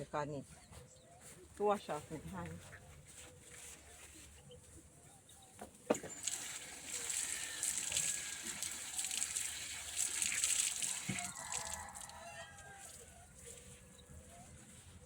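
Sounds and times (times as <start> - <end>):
water running from tap: 6.0 - 12.1
hands washing under water: 6.0 - 13.1.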